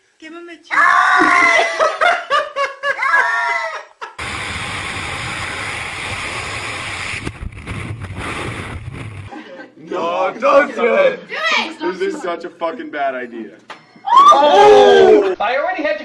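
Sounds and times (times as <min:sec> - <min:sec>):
high voice screaming: 0:00.7 - 0:01.8, 0:03.0 - 0:03.9
steady rushing noise: 0:04.2 - 0:09.3.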